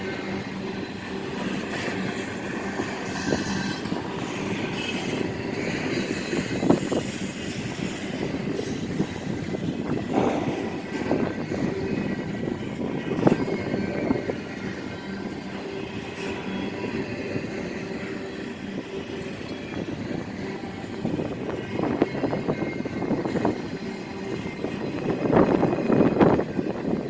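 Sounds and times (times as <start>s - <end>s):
train wheels rumbling on rails: 0.0s - 27.0s
train wheel knocks: 10.1s - 11.7s.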